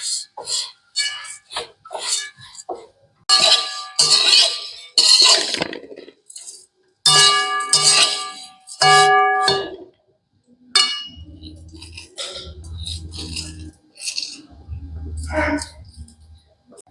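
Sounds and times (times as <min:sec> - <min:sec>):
metal cookware clanging: 0:00.0 - 0:10.0, 0:10.7 - 0:16.9
low steady hum: 0:10.5 - 0:16.8.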